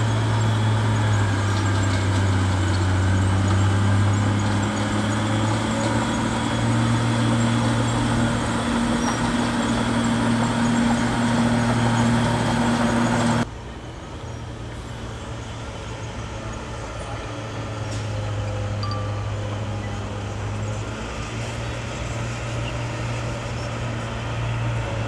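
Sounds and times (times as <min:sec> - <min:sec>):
bulldozer diesel engine running: 0:00.0 - 0:13.5.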